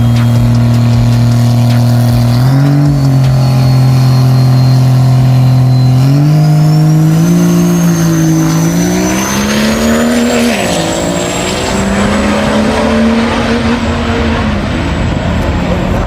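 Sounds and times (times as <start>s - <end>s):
diesel truck engine accelerating: 0.0s - 16.0s
high whine: 0.0s - 16.0s.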